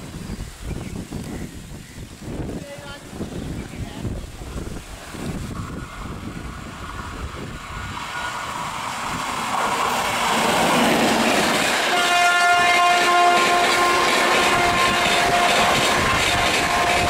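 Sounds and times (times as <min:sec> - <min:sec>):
train rumble and wheel noise: 0:00.0 - 0:17.0
multi-tone train horn blast: 0:11.8 - 0:17.0.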